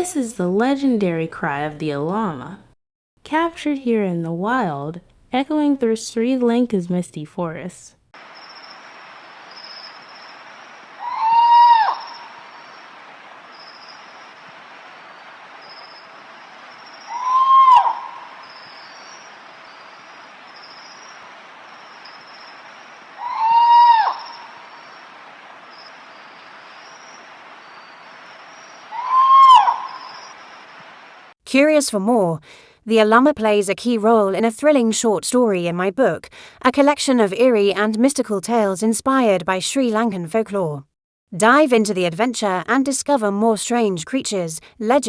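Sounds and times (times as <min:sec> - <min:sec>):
high chirping: 0:08.2 - 0:30.8
faint hiss: 0:08.2 - 0:31.4
owl scream-like cries: 0:08.4 - 0:14.4, 0:15.1 - 0:30.7.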